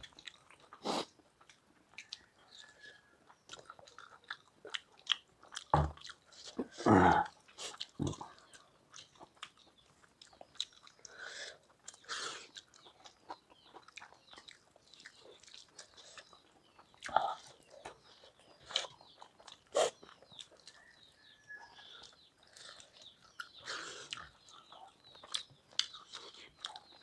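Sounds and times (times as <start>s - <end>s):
chewing and wet mouth sounds: 0.0s - 27.0s.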